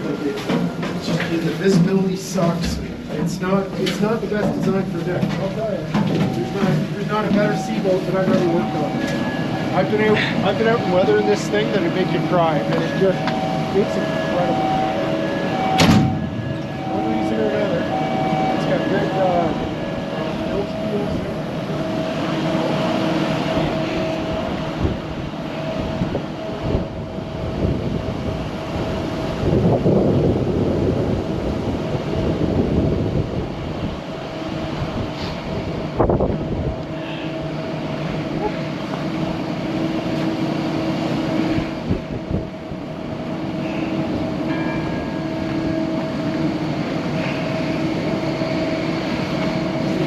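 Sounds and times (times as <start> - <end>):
machinery drone: 0.0 - 50.0
sharp knock: 15.8 - 16.7.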